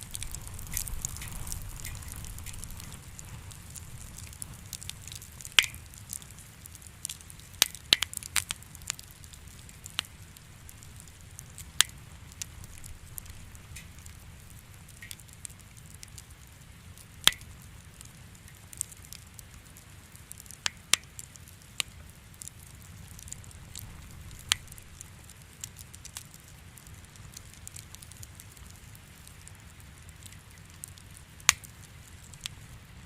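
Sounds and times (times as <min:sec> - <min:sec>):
low steady rumble: 0:00.0 - 0:18.4, 0:22.1 - 0:33.0
wood fire crackling and popping: 0:00.0 - 0:33.0.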